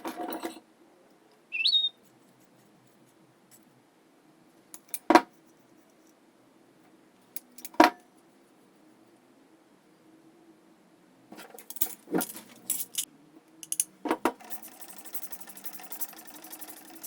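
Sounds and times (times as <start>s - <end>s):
metallic clinks: 11.7s - 17.0s.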